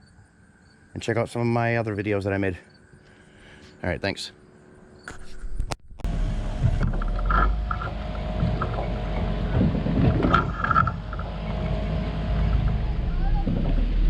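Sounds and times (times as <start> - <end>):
outboard motor running: 6.0 - 14.0
wind buffeting microphone: 7.8 - 14.0.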